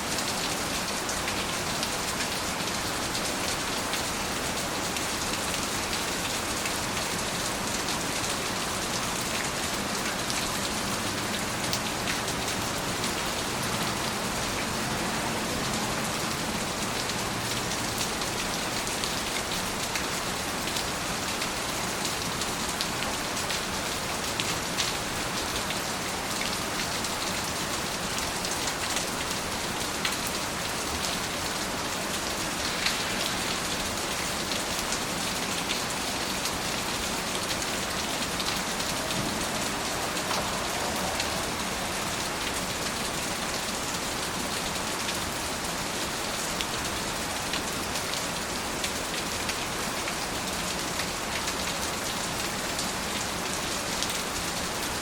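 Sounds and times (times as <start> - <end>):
raindrops ticking on surface: 7.9 - 55.0
rain hissing: 29.4 - 44.6.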